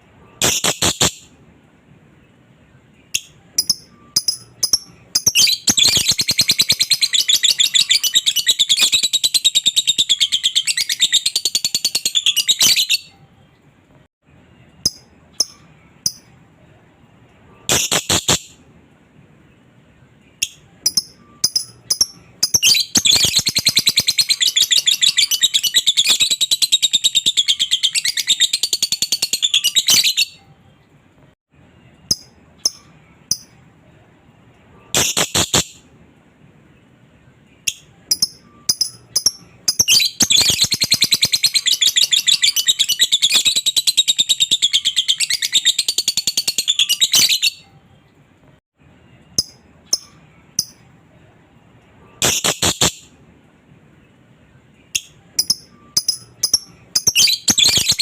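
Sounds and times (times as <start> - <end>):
bird chirps: 2.2 - 13.7, 20.2 - 31.0, 31.9 - 33.6, 37.5 - 48.2, 54.8 - 58.0.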